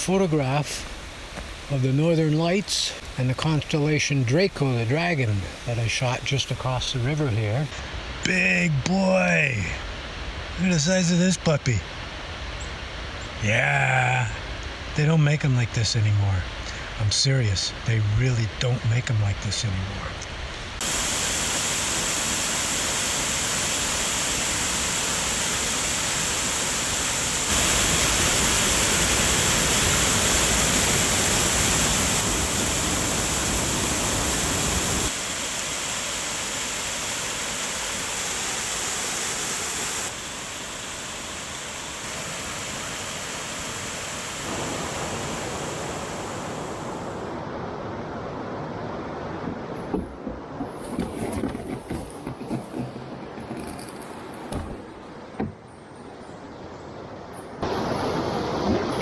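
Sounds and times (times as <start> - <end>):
river water rushing: 0.0 - 7.8, 20.7 - 49.4, 57.6 - 59.0.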